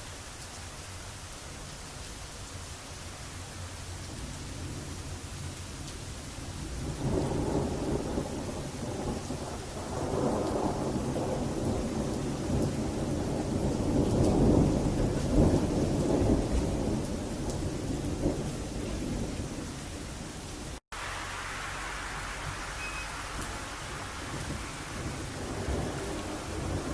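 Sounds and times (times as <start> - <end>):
steady rain: 0.0 - 26.9
thunder rumbling: 6.6 - 26.9.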